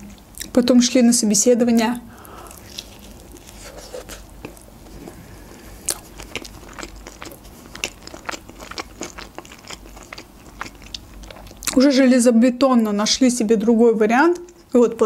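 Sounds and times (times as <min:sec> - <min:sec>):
chewing fried chicken burger: 0:02.2 - 0:11.8.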